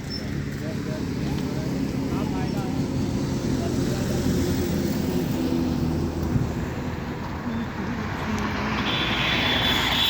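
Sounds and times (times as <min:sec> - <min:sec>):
vehicle engine rumbling: 0:00.0 - 0:10.0.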